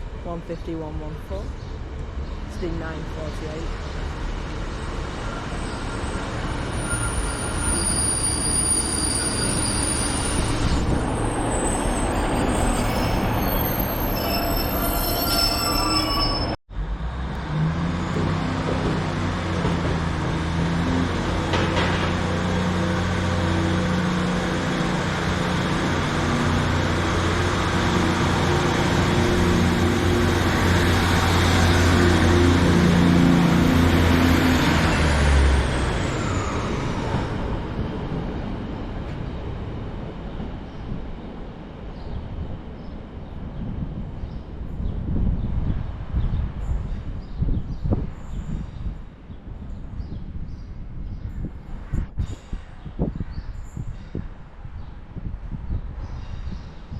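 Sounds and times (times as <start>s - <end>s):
train engine hum: 0.0s - 47.1s
train wheels squealing: 5.2s - 16.6s.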